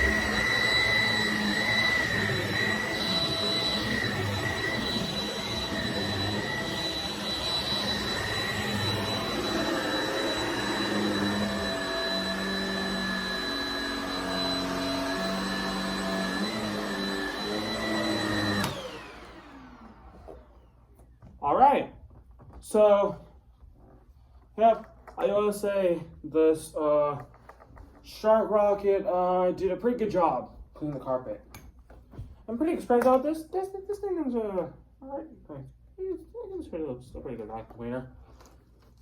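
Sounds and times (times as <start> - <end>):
stick vacuum running on carpet: 0.0 - 20.6.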